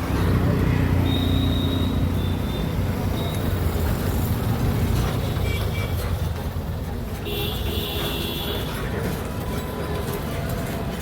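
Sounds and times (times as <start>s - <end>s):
road traffic: 0.0s - 11.0s
vehicle engine rumbling: 0.0s - 11.0s.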